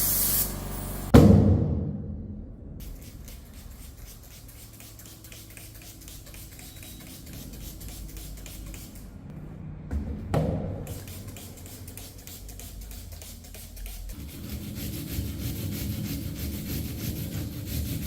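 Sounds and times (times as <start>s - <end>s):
light scratching strokes: 2.8s - 9.1s, 10.9s - 18.0s.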